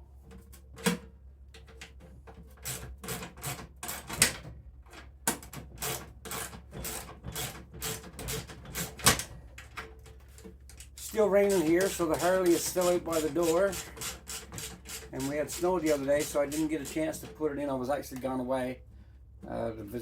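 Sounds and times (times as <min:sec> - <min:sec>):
steady low hum: 0:07.9 - 0:20.0.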